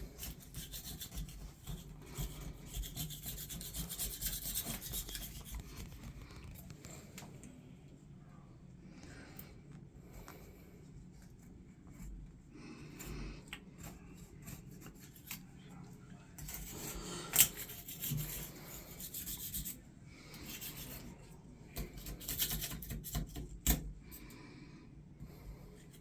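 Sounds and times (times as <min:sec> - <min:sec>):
hand scrubbing a part: 0:00.0 - 0:06.1, 0:16.4 - 0:21.2.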